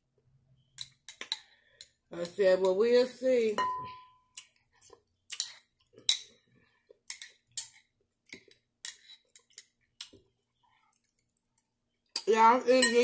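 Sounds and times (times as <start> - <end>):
chewing crisp salad: 4.3 - 12.2.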